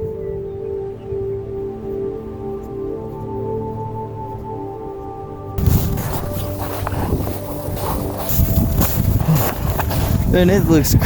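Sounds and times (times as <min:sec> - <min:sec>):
wind buffeting microphone: 0:05.6 - 0:11.0.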